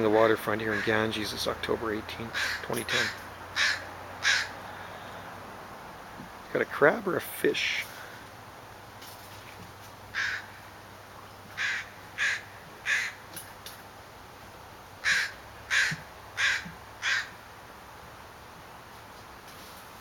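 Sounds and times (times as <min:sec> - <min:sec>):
harsh bird calls: 0:00.0 - 0:01.5, 0:02.1 - 0:05.3, 0:10.1 - 0:13.3.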